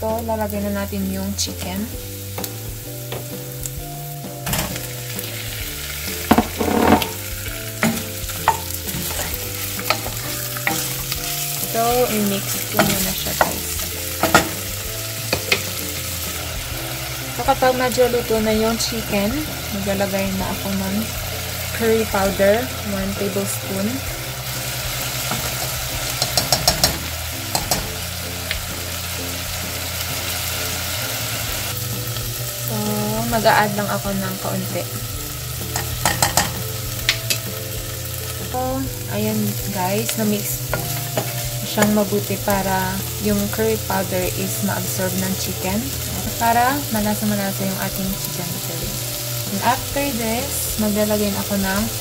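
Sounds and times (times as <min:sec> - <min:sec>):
onion and garlic sizzling in butter: 0:00.0 - 0:52.0
spoon knocking against pot: 0:26.2 - 0:28.0, 0:35.8 - 0:37.4.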